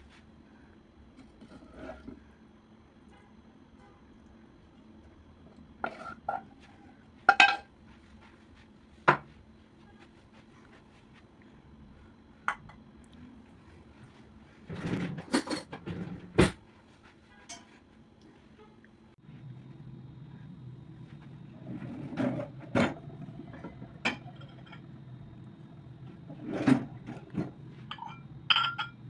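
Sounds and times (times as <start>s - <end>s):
dishes and cutlery clinking: 7.3s - 7.7s, 14.8s - 16.5s, 26.6s - 29.0s.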